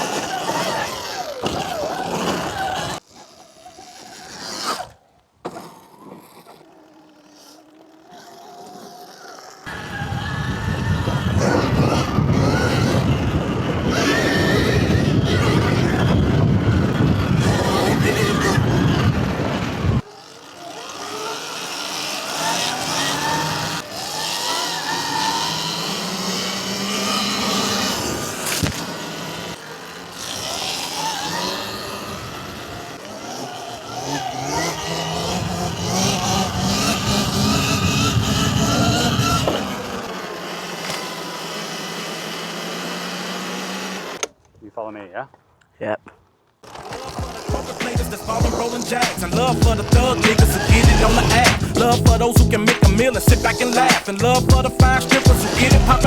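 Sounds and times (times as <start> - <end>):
electric motors whining: 0.0 - 44.4, 46.6 - 56.0
loud rushing noise: 47.6 - 56.0.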